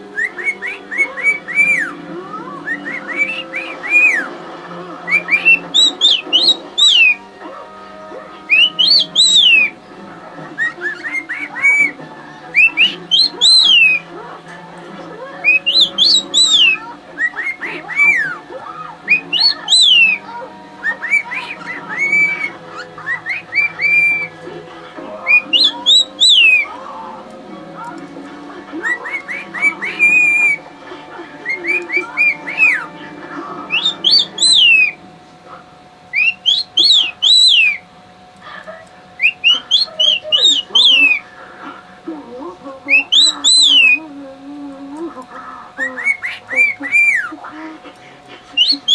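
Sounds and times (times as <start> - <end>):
cockatiel whistling a tune: 0.1 - 4.3, 5.0 - 7.4, 8.0 - 9.8, 10.6 - 14.0, 15.4 - 24.4, 25.2 - 26.7, 28.8 - 30.7, 31.4 - 33.0, 33.7 - 35.0, 36.1 - 37.9, 39.2 - 41.3, 42.9 - 44.0, 45.8 - 47.3, 48.5 - 48.9.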